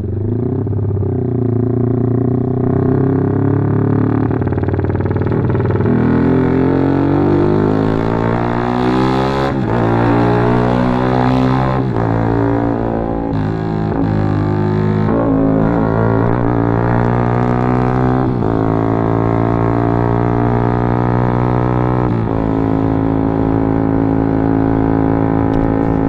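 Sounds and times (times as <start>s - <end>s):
motorcycle accelerating: 0.0s - 26.0s.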